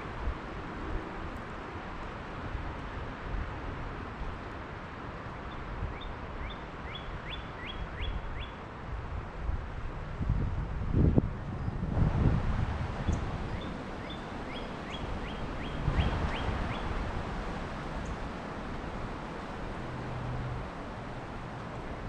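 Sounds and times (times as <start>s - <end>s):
wind rumble on microphone: 0.0s - 6.5s, 7.1s - 22.0s
songbird whistling upward notes: 6.0s - 8.6s, 13.1s - 16.8s.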